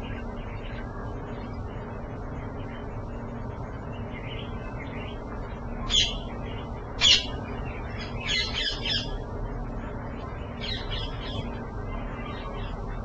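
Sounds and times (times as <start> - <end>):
steady low hum: 0.0 - 13.0
harsh bird calls: 4.0 - 9.3.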